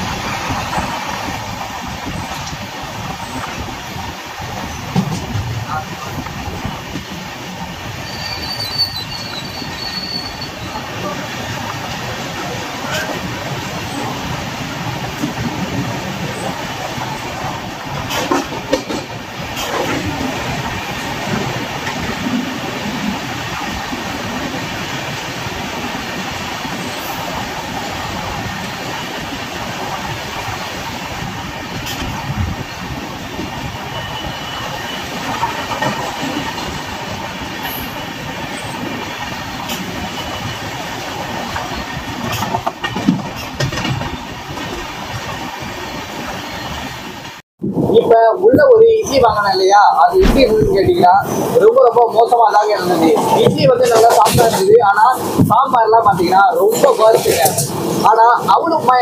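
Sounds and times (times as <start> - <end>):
train wheels rumbling on rails: 0.0 - 59.0
sharp clicks and knocks: 50.2 - 51.0.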